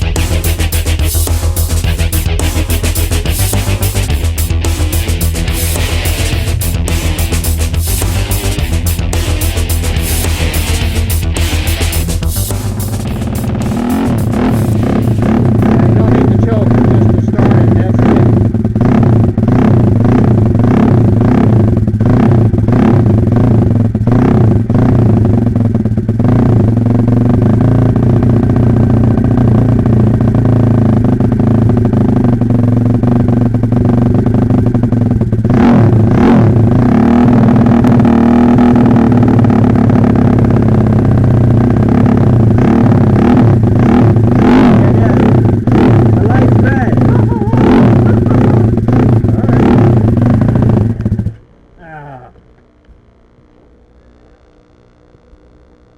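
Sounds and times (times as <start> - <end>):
motorbike engine revving: 0.0 - 51.4.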